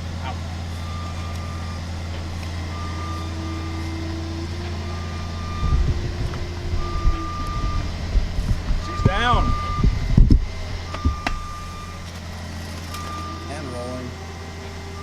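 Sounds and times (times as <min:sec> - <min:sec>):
truck engine running: 0:00.0 - 0:15.0
back-up alarm beeping: 0:00.8 - 0:08.0, 0:08.8 - 0:12.1, 0:12.9 - 0:14.1
heavy low thumps and rumbling: 0:00.8 - 0:12.1.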